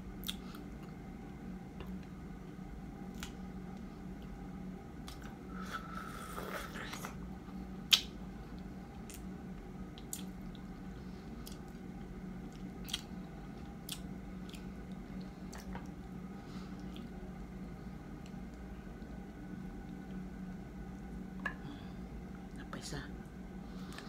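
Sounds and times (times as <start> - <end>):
steady low hum: 0.0 - 24.0
chewing with wet mouth clicks: 0.2 - 0.6, 5.0 - 5.3, 7.9 - 8.1, 9.0 - 9.3, 10.0 - 10.6, 11.4 - 11.8, 12.4 - 13.1, 13.8 - 16.0.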